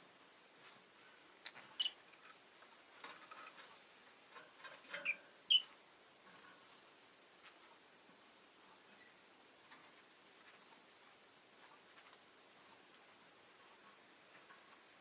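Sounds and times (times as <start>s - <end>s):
lovebird chirping: 1.4s - 2.0s, 5.0s - 5.7s.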